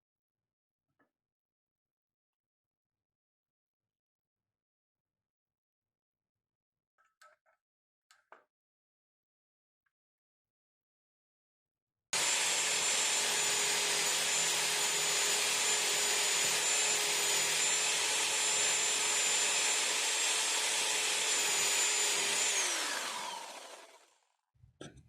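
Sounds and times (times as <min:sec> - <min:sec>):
power tool motor whine: 0:12.2 - 0:24.2.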